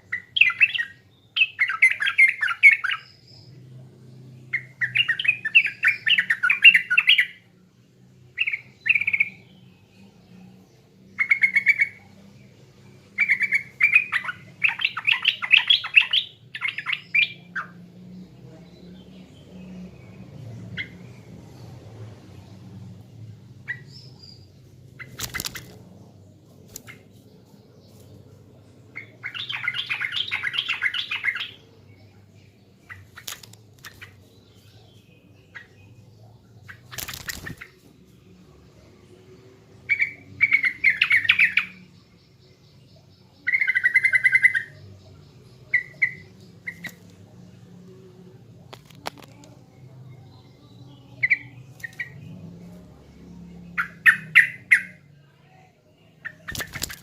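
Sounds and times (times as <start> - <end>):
bird chirping: 0.0 - 57.0
faint low hum: 0.0 - 57.0
sharp clicks: 33.1 - 34.0.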